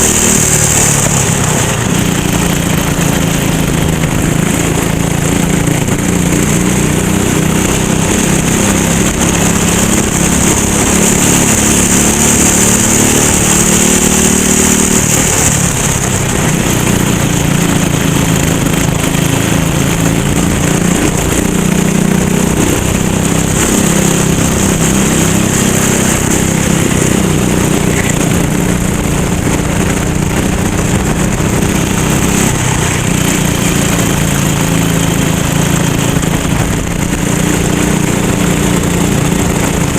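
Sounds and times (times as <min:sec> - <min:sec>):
go-kart engine accelerating: 0:00.0 - 0:39.9.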